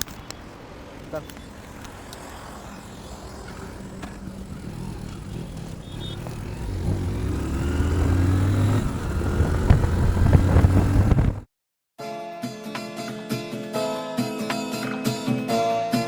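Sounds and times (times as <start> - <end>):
vehicle engine humming: 0.0 - 11.5.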